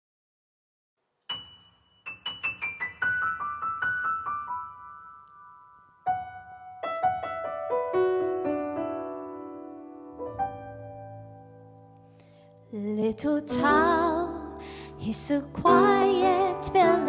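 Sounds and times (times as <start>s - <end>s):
solo piano: 1.3s - 17.0s.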